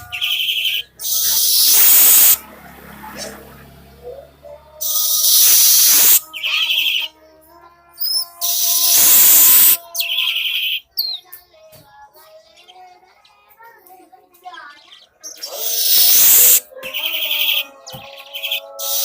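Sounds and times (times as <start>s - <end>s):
bird rapid chatter: 0.0s - 4.2s, 4.8s - 7.1s, 8.0s - 11.3s, 14.4s - 19.0s.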